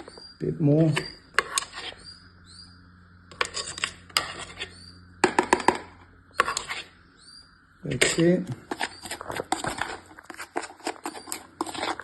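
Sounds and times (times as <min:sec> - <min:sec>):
birds chirping: 0:00.0 - 0:10.2
utensil scraping a bowl: 0:00.8 - 0:02.2, 0:03.3 - 0:07.0, 0:07.9 - 0:12.0.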